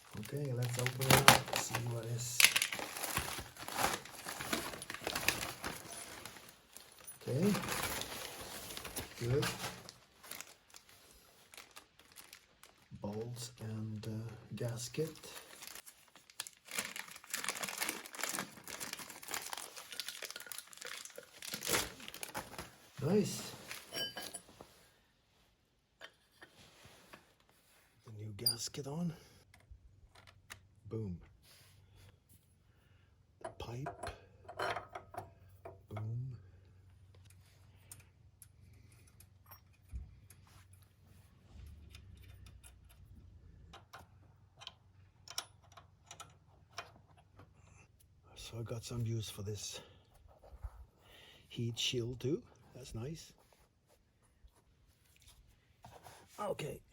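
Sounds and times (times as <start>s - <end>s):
packaging rustling and crackling: 0.0s - 13.2s, 14.9s - 23.9s.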